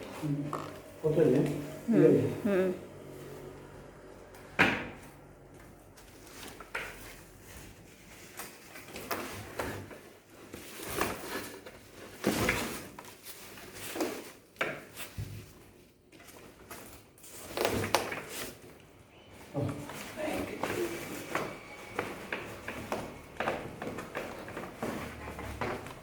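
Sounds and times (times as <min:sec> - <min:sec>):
cardboard packing knocks and rustles: 0:06.1 - 0:18.6, 0:19.6 - 0:26.0.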